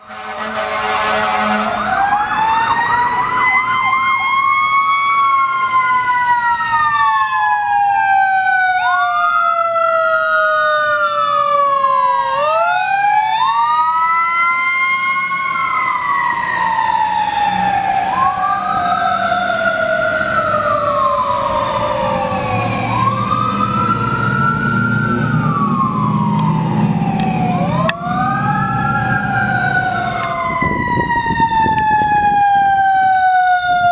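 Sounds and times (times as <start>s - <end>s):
horn blast: 0.0s - 1.9s
fast yelp siren: 0.0s - 33.9s
wailing sirens: 0.0s - 33.9s
truck engine rumbling: 14.1s - 32.8s.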